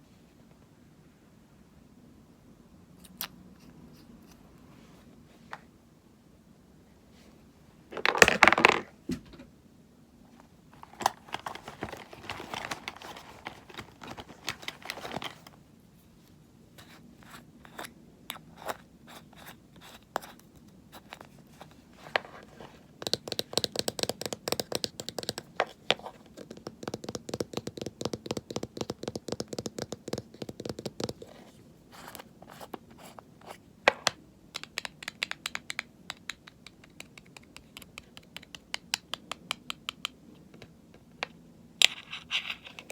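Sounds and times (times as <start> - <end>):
tapping and scratching on packaging: 10.8 - 15.6.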